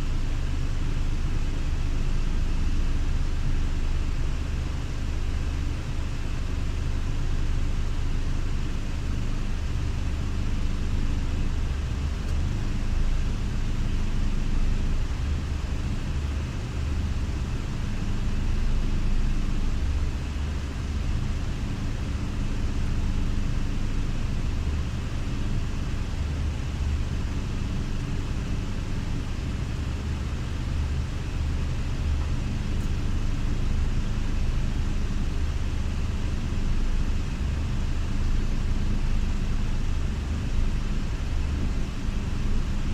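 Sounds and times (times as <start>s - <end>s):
diesel coach engine droning: 10.6s - 42.9s.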